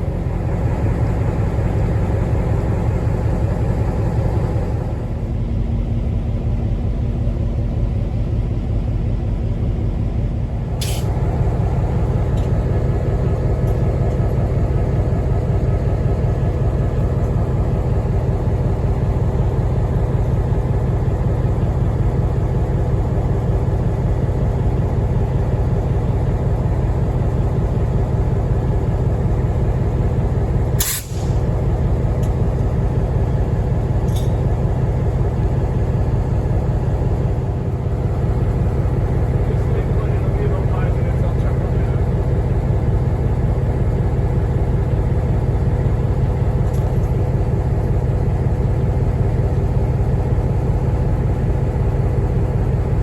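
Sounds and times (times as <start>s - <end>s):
locomotive engine rumble: 0.0s - 53.0s
air hiss bursts: 30.8s - 31.3s.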